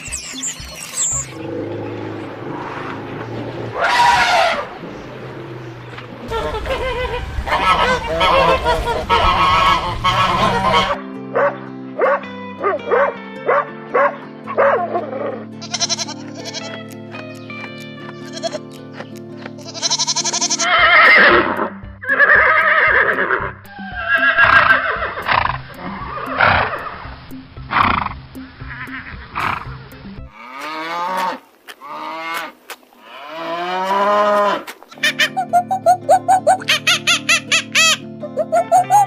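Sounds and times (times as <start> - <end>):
farm animal calls: 0.2 - 11.0, 14.6 - 17.0, 18.1 - 27.1
background music with steady beat: 9.3 - 30.8.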